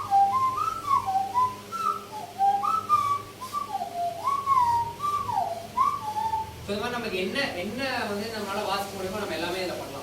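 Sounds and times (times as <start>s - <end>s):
nose flute playing a tune: 0.0s - 6.7s.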